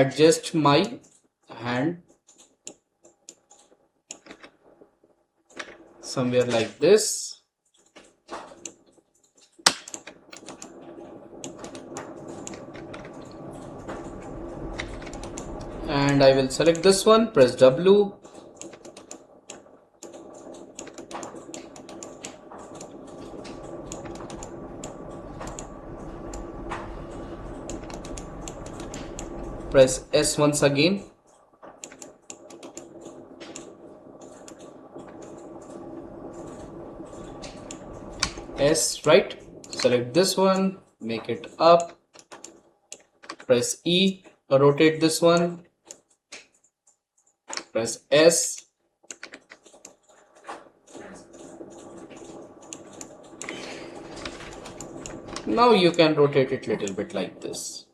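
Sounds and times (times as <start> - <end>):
keyboard keys clicking: 7.7 - 30.7, 31.3 - 43.6, 49.1 - 57.5
faint steady hum: 8.3 - 45.7, 49.8 - 57.9.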